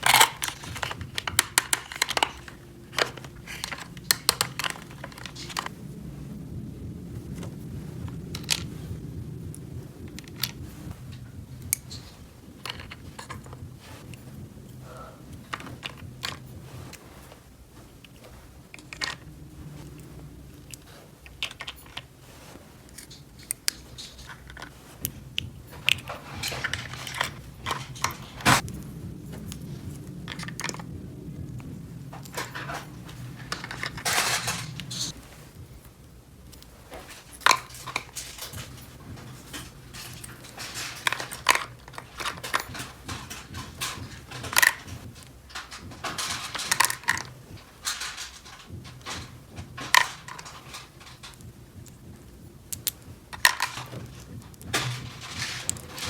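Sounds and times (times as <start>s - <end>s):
plastic toy pieces clattering: 0.0s - 5.7s, 8.0s - 8.8s, 10.0s - 14.1s, 14.9s - 16.5s, 18.1s - 19.9s, 20.6s - 22.2s, 22.9s - 28.7s, 30.2s - 31.0s, 32.1s - 35.2s, 37.0s - 56.0s
low steady hum: 0.0s - 56.0s
short rustles: 0.0s - 56.0s.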